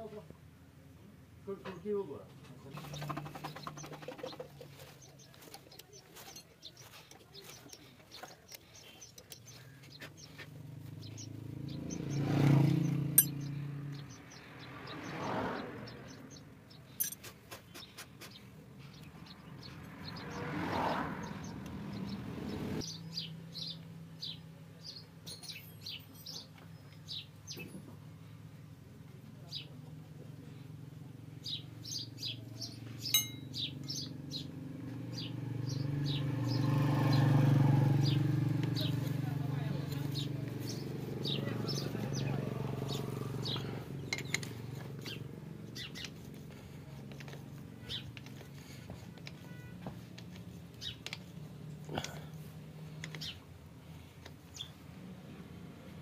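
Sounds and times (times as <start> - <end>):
small birds chirping: 0.0 - 56.0
light metallic clicks: 53.0 - 53.4.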